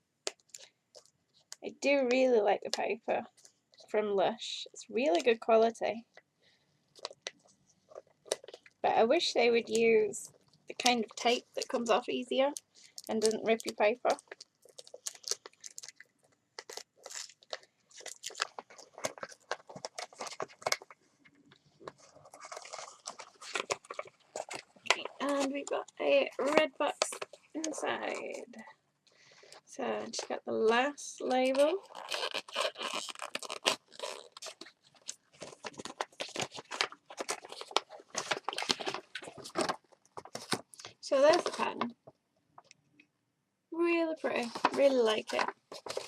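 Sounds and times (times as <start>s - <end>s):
wrapping paper crinkling: 7.0s - 8.9s, 9.6s - 28.7s, 31.3s - 42.0s, 44.2s - 46.0s
paper tearing: 21.9s - 25.5s, 31.5s - 40.6s, 44.3s - 46.0s.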